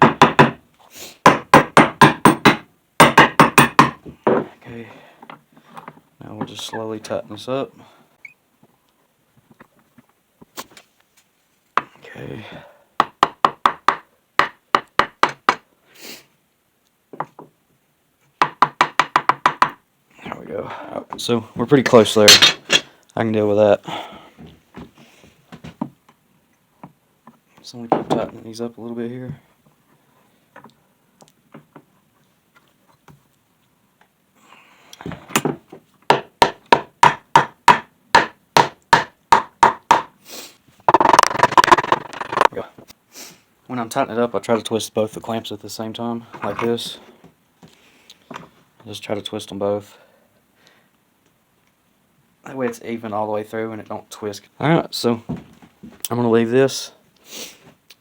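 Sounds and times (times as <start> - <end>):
knocks on wood: 0.0 - 0.6, 1.3 - 4.5, 18.4 - 19.8, 35.4 - 40.1, 40.9 - 42.5
wooden board knocking: 0.0 - 0.6, 18.4 - 19.8, 40.9 - 42.6.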